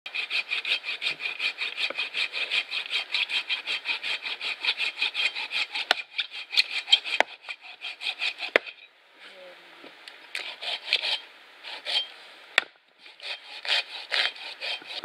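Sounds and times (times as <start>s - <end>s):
striker scraping fire-starter rod: 0.1s - 8.9s, 10.1s - 15.0s.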